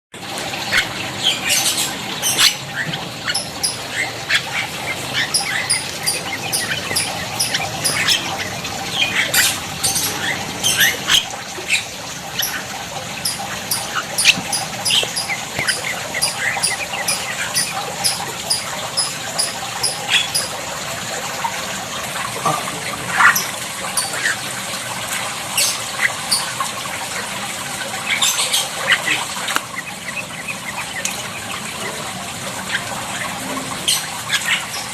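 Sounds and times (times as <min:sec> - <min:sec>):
birds chirping and squawking: 0:00.2 - 0:34.9
rushing water: 0:00.2 - 0:34.9
high bird chirp: 0:00.7 - 0:20.6.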